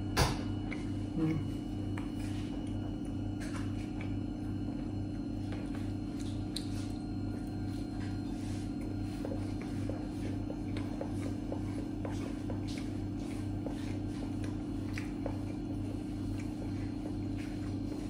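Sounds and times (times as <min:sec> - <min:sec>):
steady pulsing low hum: 0:00.0 - 0:18.0
man chewing pizza: 0:00.4 - 0:18.0.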